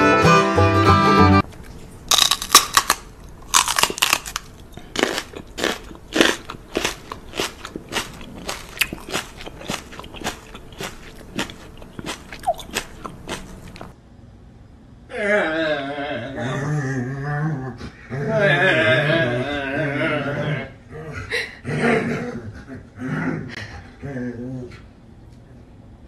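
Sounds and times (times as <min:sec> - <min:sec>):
crunchy chewing: 0:01.4 - 0:14.0.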